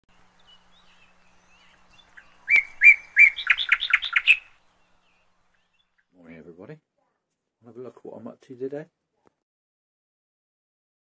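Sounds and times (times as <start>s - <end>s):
bird chirping: 0.1s - 7.4s.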